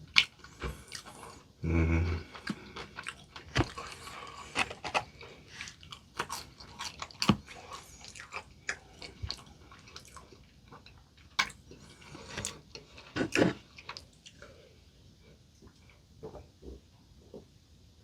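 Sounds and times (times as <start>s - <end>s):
chewing crunchy fried chicken: 0.0s - 1.5s, 2.1s - 14.5s.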